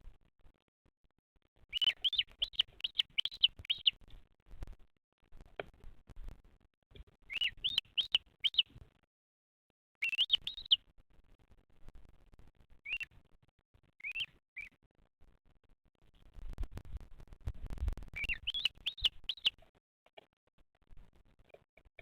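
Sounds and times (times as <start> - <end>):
bird chirping: 1.7 - 4.1, 7.3 - 8.8, 10.0 - 10.8, 12.8 - 13.2, 14.0 - 14.8, 18.1 - 19.6.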